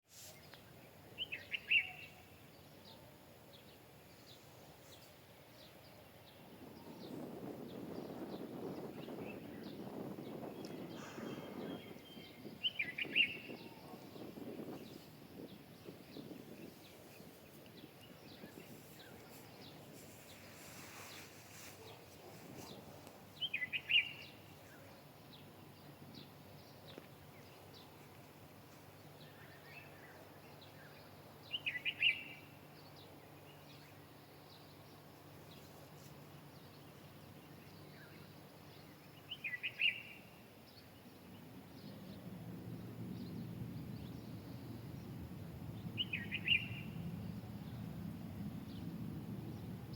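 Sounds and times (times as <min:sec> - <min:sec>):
bird calling: 0:01.2 - 0:02.3, 0:10.7 - 0:14.2.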